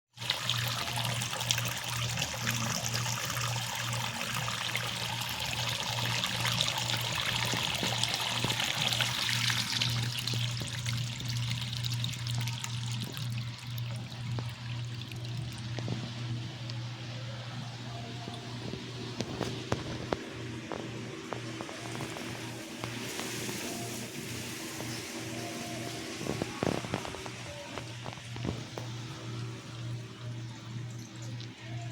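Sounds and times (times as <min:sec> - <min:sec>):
water gushing from pipe onto ground: 0:00.2 - 0:16.9, 0:18.8 - 0:29.9
low pulsing hum: 0:05.4 - 0:31.9.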